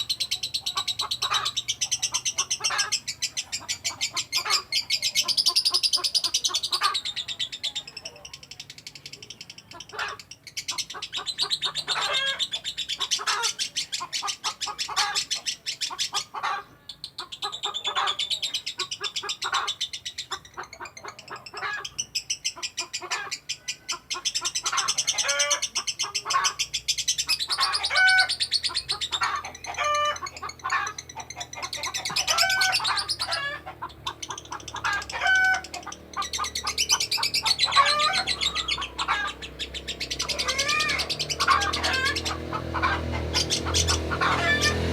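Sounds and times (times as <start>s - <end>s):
lovebird rattling chirps: 17.0s - 42.4s.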